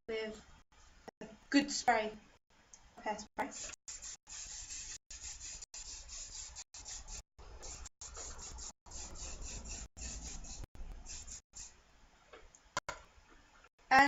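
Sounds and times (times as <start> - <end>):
aerosol hairspray hissing: 3.5 - 11.7.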